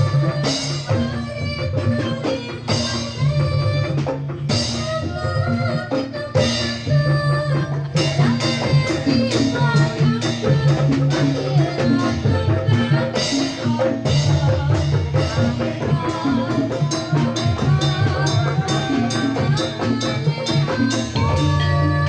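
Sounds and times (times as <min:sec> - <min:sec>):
drums: 0:00.0 - 0:22.0
wavering melody line: 0:04.4 - 0:22.0
tuned metal percussion: 0:07.9 - 0:22.0.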